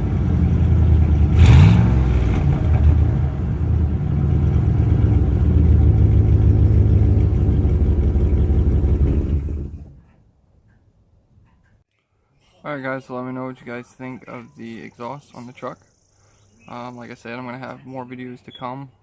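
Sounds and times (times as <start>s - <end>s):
car engine revving and idling: 0.0s - 10.0s.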